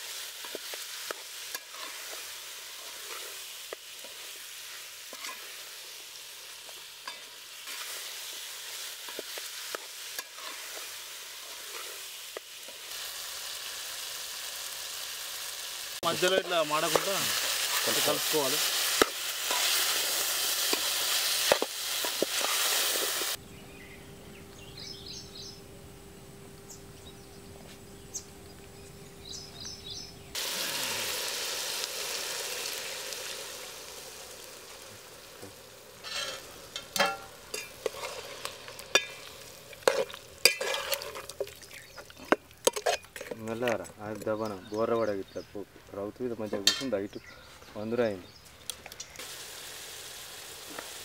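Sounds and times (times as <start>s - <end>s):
chicken sizzling in a pot: 0.0s - 23.4s, 30.3s - 45.2s, 48.9s - 51.0s
liquid hissing in hot pot: 0.0s - 23.4s, 30.4s - 41.9s, 49.2s - 51.0s
ladle clinking and scraping pot: 36.0s - 43.8s, 46.6s - 47.0s.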